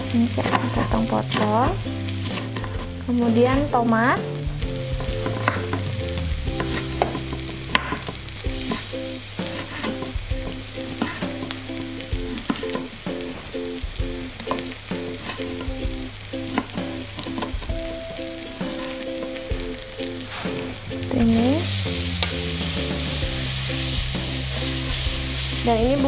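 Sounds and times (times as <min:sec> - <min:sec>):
spice paste sizzling in oil: 0:00.0 - 0:26.0.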